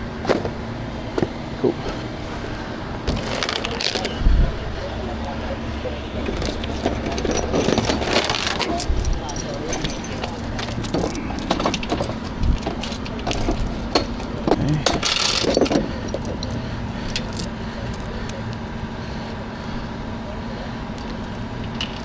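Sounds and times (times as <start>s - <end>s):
steady low hum: 0.0s - 22.0s
metal chain clinking and rattling: 6.2s - 17.5s.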